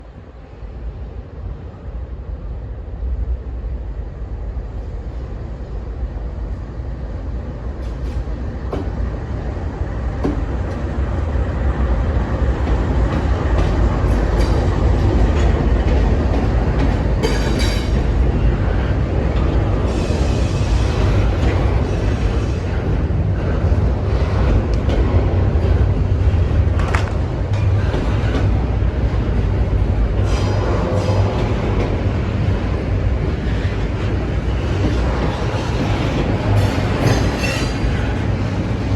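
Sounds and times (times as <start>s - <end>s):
freight train rumble: 0.0s - 38.9s.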